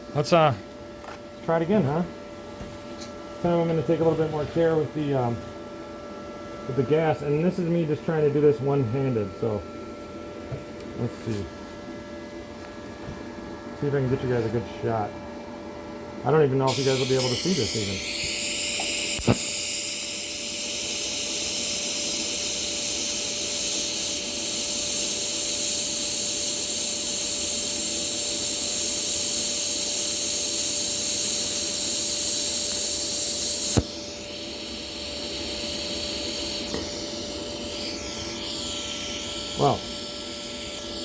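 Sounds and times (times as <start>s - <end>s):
welding arc hissing: 16.6s - 41.0s
welder click: 16.7s - 39.4s
welding machine hum: 16.7s - 41.0s.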